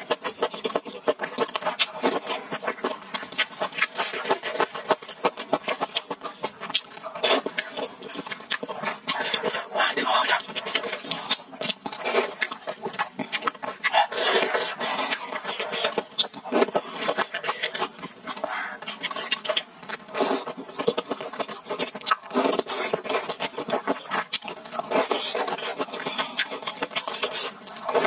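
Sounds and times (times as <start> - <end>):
wet chewing mouth sounds: 0.0 - 28.0.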